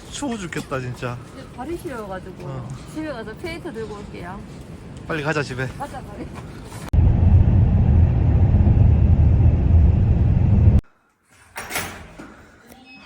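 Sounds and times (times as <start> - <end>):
car road and engine rumble: 6.9 - 10.8.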